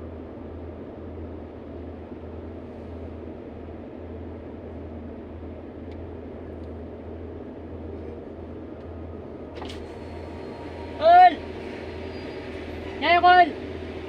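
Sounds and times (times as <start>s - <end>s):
road noise inside cab: 0.0s - 14.0s
truck diesel engine running: 9.1s - 14.0s.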